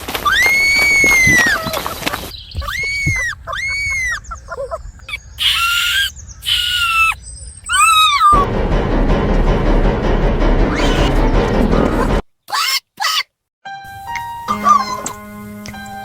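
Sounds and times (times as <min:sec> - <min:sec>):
high-pitched animal cries: 0:02.6 - 0:08.5, 0:10.7 - 0:11.1, 0:12.5 - 0:13.3, 0:14.5 - 0:15.2
background music: 0:08.4 - 0:12.2, 0:13.7 - 0:16.0.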